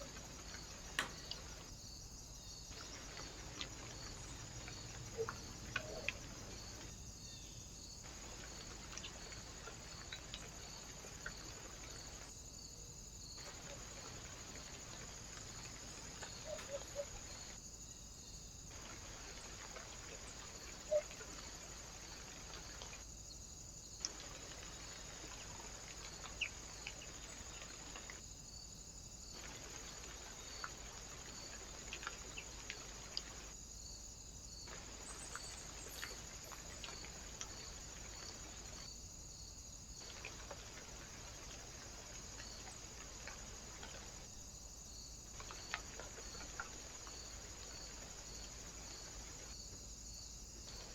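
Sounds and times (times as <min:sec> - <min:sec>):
faint sharp clicks: 0:00.0 - 0:01.7, 0:04.6 - 0:06.9, 0:24.0 - 0:24.3.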